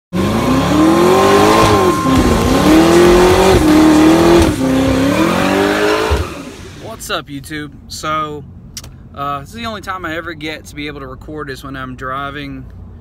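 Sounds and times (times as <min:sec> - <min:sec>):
car engine revving: 0:00.1 - 0:07.0
spinning tyres hissing: 0:00.2 - 0:07.0.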